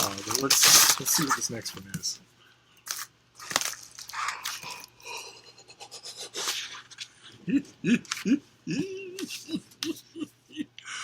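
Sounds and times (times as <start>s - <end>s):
packaging rustling and crinkling: 0.0s - 1.9s, 2.9s - 4.5s.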